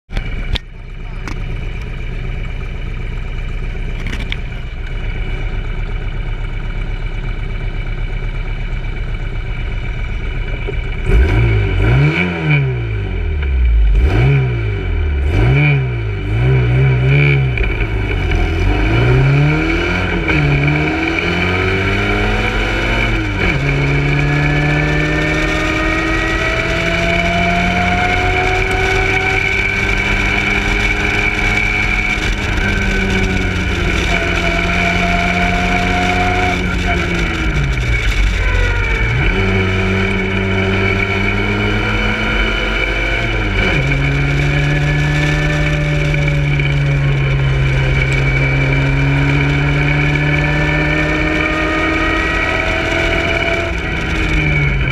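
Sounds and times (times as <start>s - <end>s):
race car engine revving: 10.4s - 54.9s.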